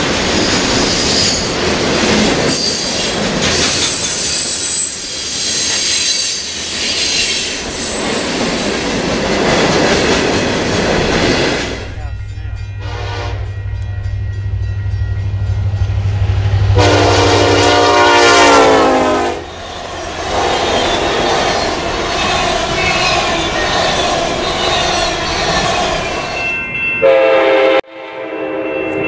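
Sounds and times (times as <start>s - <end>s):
train cars rumbling on rails: 0.0s - 27.8s
train horn: 12.8s - 14.2s, 15.3s - 21.4s, 27.0s - 29.0s.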